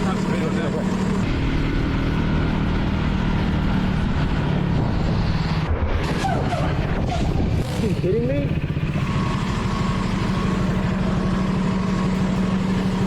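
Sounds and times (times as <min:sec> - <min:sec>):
motorcycle engine running: 0:00.0 - 0:13.0
wind rush on microphone: 0:03.0 - 0:08.8.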